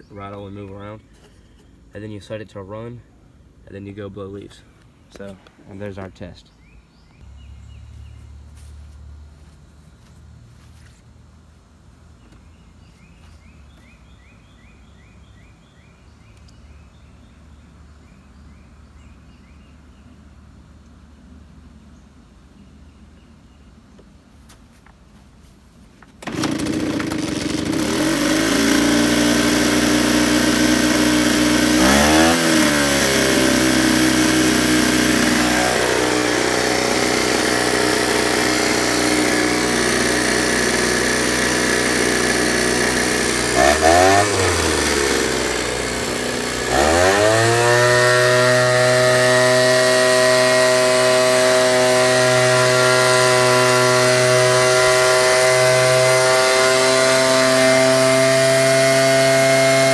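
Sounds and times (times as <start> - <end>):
leaf blower engine drone: 26.2 - 59.9.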